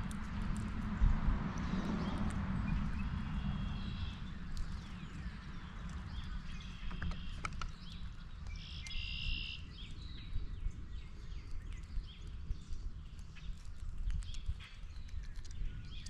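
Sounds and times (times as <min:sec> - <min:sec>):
steady low rumble: 0:00.0 - 0:16.0
birds calling: 0:01.6 - 0:12.4.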